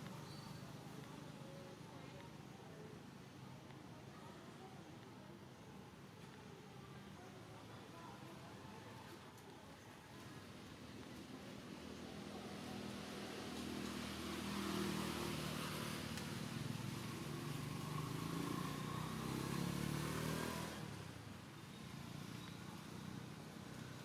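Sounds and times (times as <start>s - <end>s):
vehicle engine passing by: 12.5s - 21.2s.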